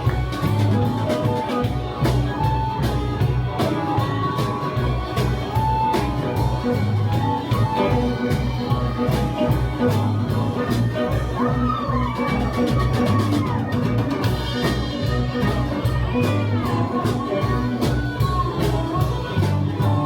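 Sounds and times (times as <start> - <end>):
blues-rock band playing: 0.0 - 20.0
electric guitar lead notes: 0.0 - 20.0.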